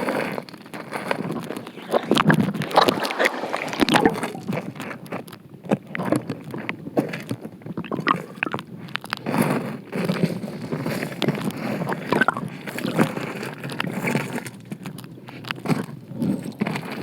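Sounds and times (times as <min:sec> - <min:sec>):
stream water sloshing and gurgling: 0:01.1 - 0:05.0, 0:07.7 - 0:08.6, 0:11.8 - 0:13.3.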